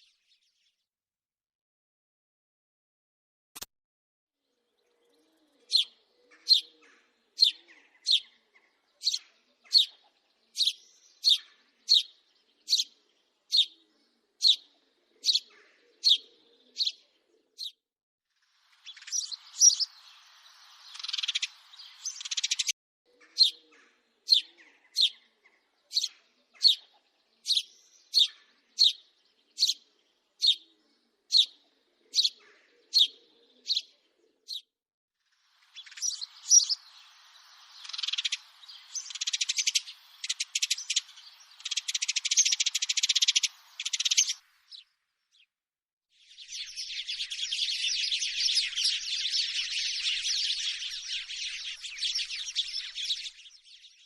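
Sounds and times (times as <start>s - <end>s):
sparrow chirping: 4.8s - 17.8s, 18.6s - 34.7s, 35.4s - 45.5s, 46.2s - 54.0s
harsh bird chatter: 18.8s - 29.0s, 35.6s - 44.4s, 46.4s - 54.0s.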